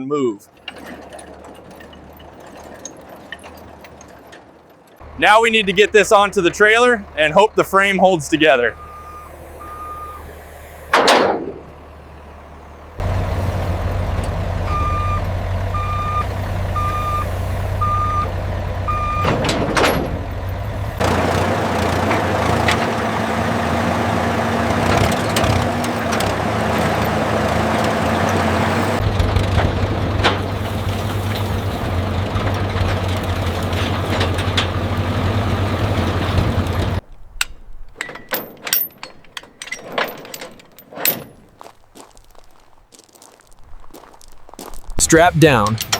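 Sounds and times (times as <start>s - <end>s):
truck engine running: 0.8s - 37.0s, 45.0s - 45.9s
reversing alarm beeps: 8.7s - 10.3s, 14.7s - 18.3s, 18.9s - 19.4s.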